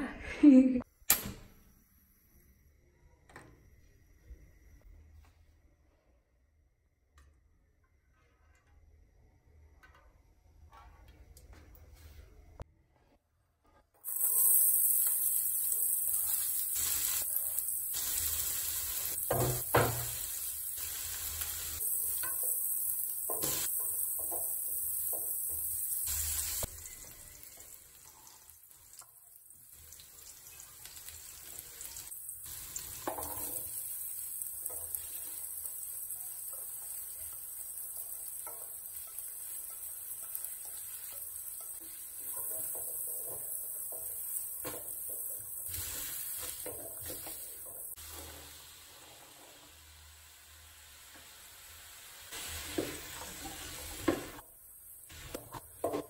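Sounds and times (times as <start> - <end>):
onions sizzling in hot oil: 14.0 - 56.0.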